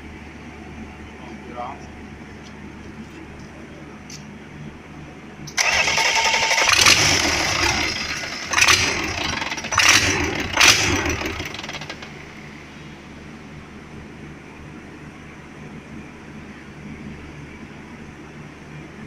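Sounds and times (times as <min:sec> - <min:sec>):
car engine starting: 0:05.5 - 0:13.2.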